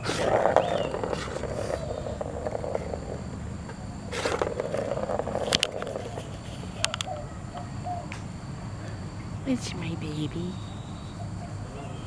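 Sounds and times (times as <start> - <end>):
cat purring: 0.0 - 6.9.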